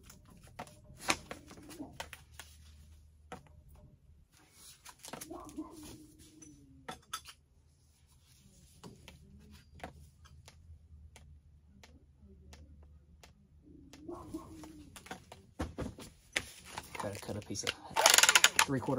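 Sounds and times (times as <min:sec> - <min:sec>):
tools clicking and tapping: 0:06.4 - 0:07.4, 0:17.6 - 0:18.9.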